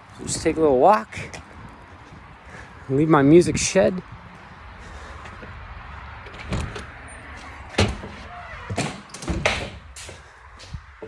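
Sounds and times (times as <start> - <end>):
sharp knocks and clunks: 6.2 - 10.8
door being shut: 7.7 - 10.2.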